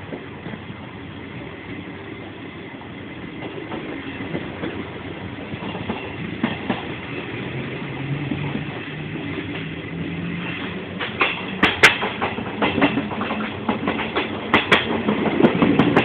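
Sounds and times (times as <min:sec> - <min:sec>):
train rumbling: 0:00.0 - 0:16.0
wheels clicking over rail joints: 0:03.4 - 0:16.0.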